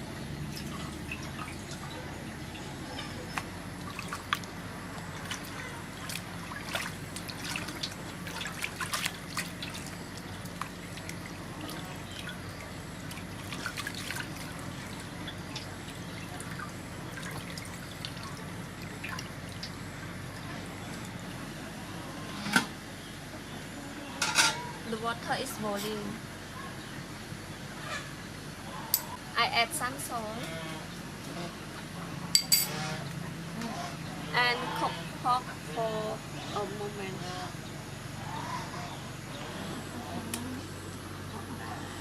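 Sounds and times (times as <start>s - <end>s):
water trickling and dripping: 0.4s - 21.4s
small clicks and splashes: 2.6s - 19.8s.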